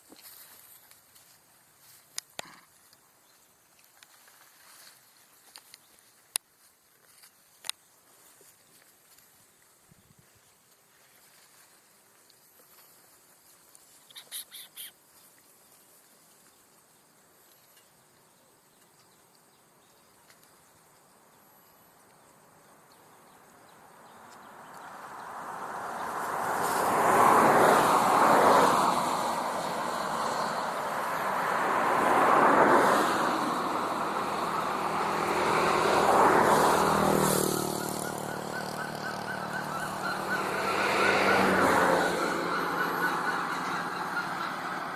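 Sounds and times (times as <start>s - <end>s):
road vehicles passing: 22.5s - 44.9s
engine humming: 24.4s - 44.9s.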